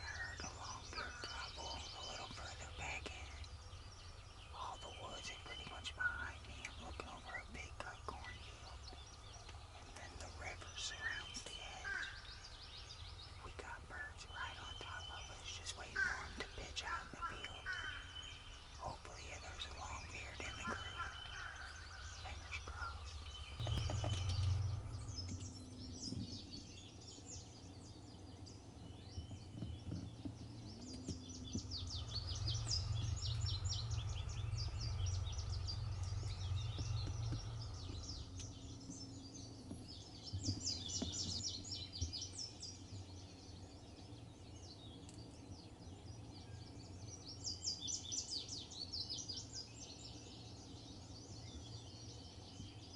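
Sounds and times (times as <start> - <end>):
low steady rumble: 0.0 - 41.7
songbirds chirping and singing: 0.0 - 52.9.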